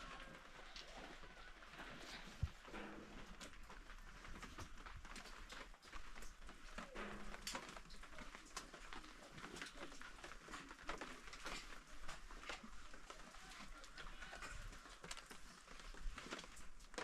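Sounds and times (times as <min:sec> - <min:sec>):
rain pattering: 0:00.0 - 0:17.0.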